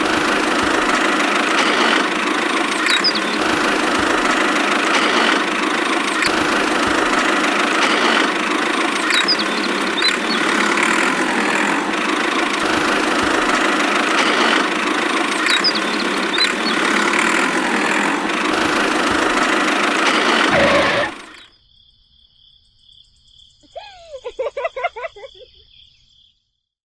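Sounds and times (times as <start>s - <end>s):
small motor running: 0.0s - 21.5s.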